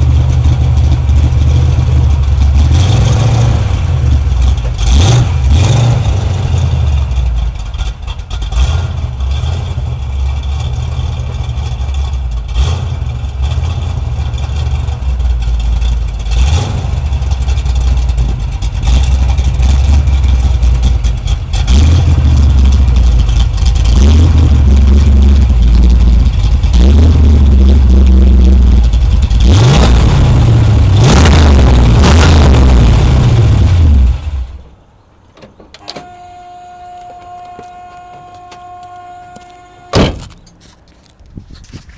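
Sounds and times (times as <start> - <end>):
car engine idling and revving: 0.0 - 41.9.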